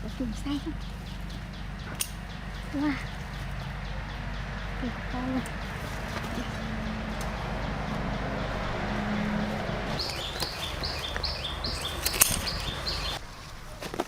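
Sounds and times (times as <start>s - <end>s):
sharp click: 1.9s - 2.2s, 12.0s - 12.8s.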